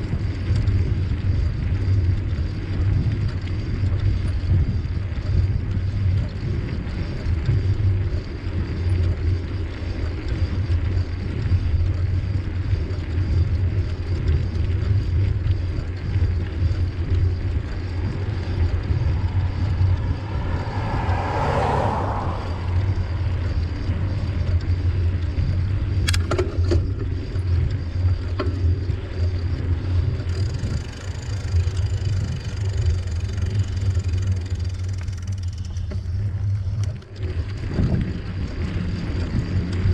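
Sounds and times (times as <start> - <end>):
bicycle tyres rolling on trail: 0.0 - 39.9
wind buffeting microphone: 0.0 - 39.9
sharp clicks: 26.0 - 26.8.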